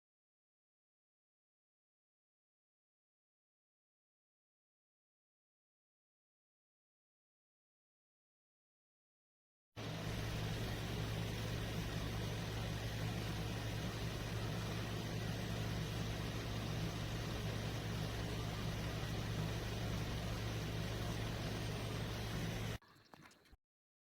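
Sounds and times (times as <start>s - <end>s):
humidifier hum and hiss: 9.8s - 22.8s.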